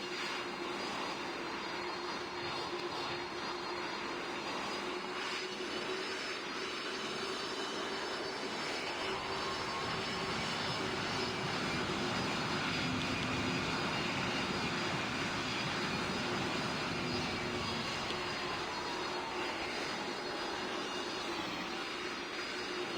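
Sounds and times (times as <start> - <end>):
faint engine whine: 0.0 - 22.9
jet engine rushing: 7.6 - 22.9.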